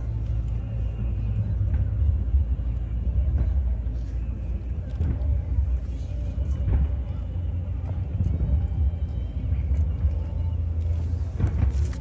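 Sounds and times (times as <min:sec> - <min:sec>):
rumble of fireworks bursts: 0:10.6 - 0:12.0.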